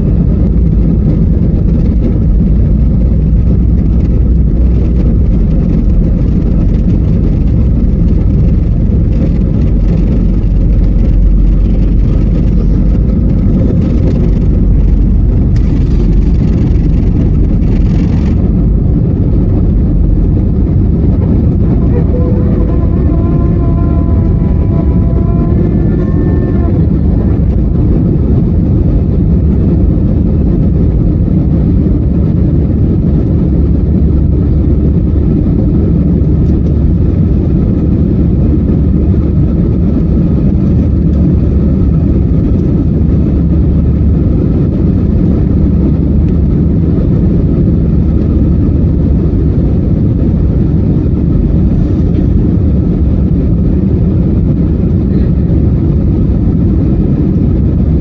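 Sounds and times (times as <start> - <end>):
airliner engines roaring: 0.0 - 58.0.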